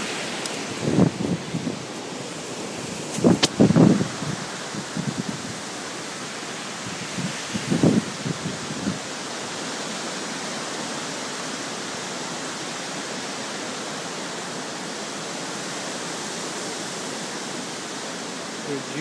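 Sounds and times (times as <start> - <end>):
hurricane wind rushing: 0.0 - 10.2.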